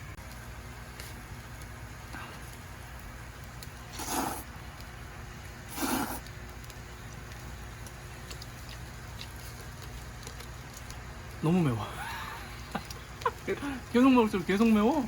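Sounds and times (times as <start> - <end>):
person slurping food: 3.9 - 4.5, 5.7 - 6.3.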